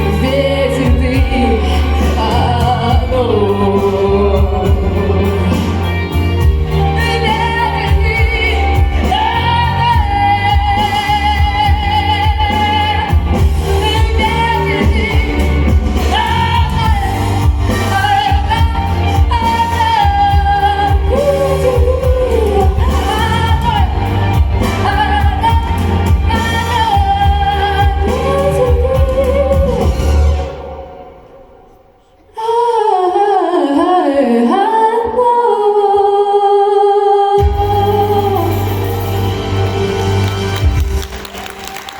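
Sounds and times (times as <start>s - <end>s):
backing track with heavy bass: 0.0s - 30.8s
person singing pop song: 0.0s - 41.9s.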